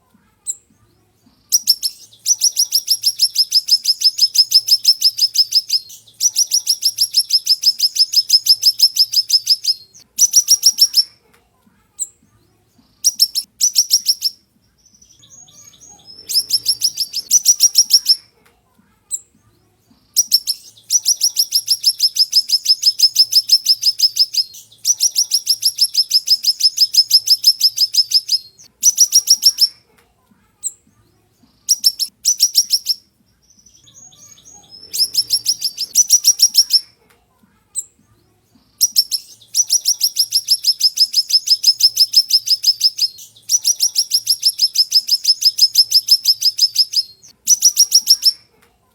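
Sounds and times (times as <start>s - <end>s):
songbird singing sharp bursts: 15.0s - 18.2s, 33.6s - 36.9s, 38.8s - 48.4s.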